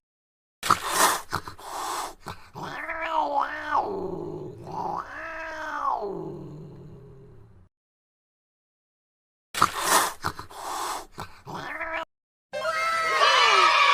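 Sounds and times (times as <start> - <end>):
cat meowing: 2.6 - 4.0, 4.7 - 6.2, 11.6 - 13.9.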